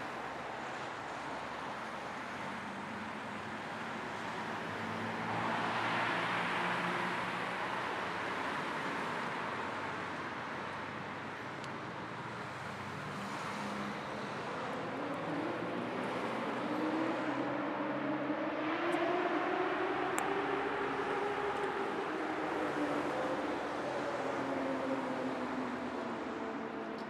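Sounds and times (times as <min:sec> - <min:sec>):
road and tyre noise: 0:00.0 - 0:27.0
car engine hum rising: 0:13.9 - 0:26.9.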